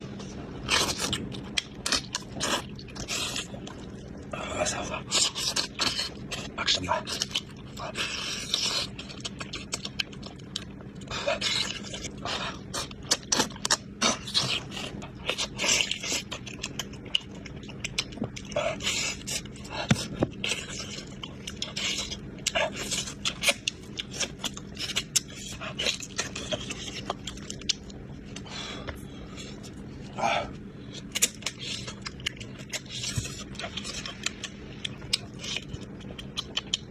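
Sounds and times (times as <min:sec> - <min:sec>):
chewing and biting: 0:00.1 - 0:36.9
smacking mouth sounds: 0:31.1 - 0:36.9.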